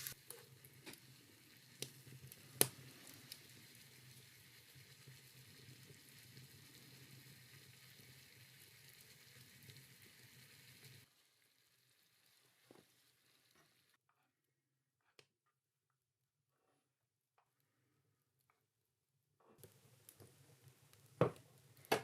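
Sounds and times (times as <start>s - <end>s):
food sizzling in a pan: 0.0s - 14.3s, 19.4s - 22.0s.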